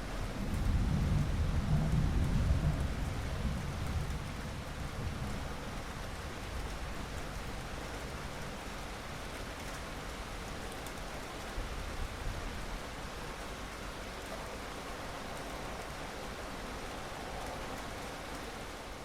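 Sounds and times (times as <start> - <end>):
steady rain: 0.0 - 19.0
thunder rumbling: 0.3 - 5.7.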